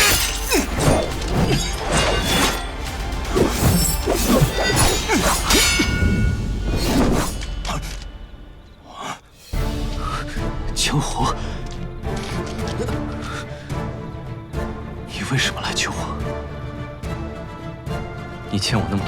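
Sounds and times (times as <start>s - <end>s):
fight hits and swishes: 0.0s - 8.0s
background music: 0.0s - 19.0s.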